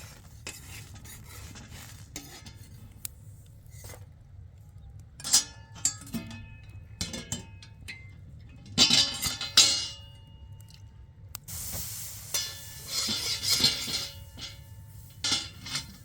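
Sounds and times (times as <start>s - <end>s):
hissing: 11.5s - 14.2s
dishes and utensils clinking: 12.3s - 16.0s.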